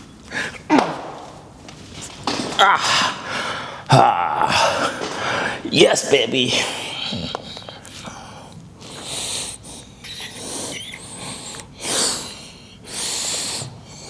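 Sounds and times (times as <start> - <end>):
man breathing hard: 2.9 - 5.7, 6.6 - 14.0.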